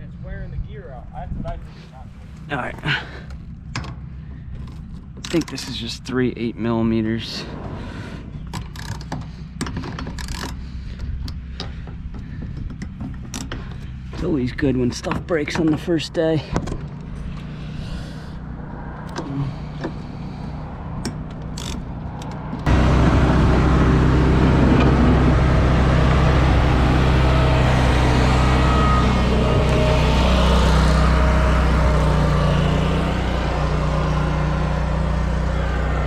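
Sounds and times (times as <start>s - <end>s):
small engine running: 22.6s - 36.0s.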